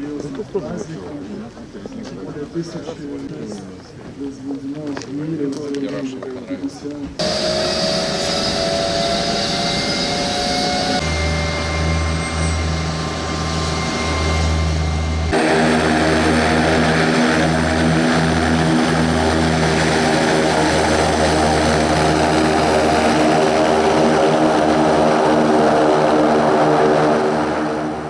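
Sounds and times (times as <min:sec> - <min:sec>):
turboprop aircraft droning: 0:06.6 - 0:28.0.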